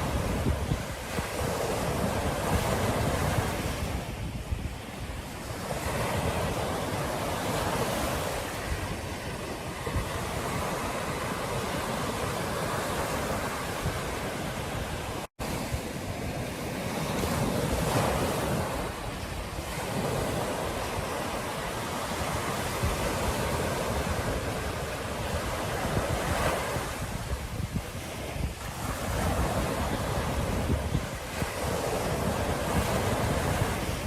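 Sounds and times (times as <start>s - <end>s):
ocean surf washing on beach: 0.0s - 34.0s
wind buffeting microphone: 0.0s - 34.0s.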